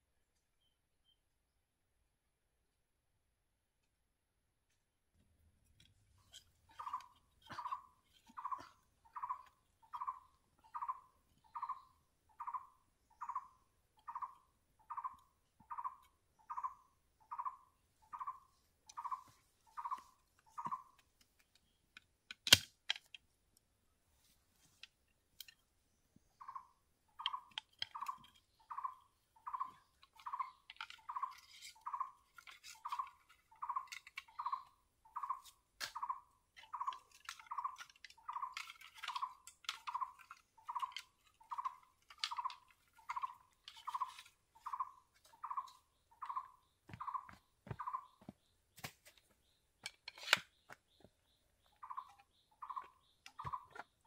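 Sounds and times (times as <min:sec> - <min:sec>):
clicks and knocks of bamboo work: 0:04.6 - 0:11.5, 0:18.9 - 0:26.5, 0:27.1 - 0:54.0.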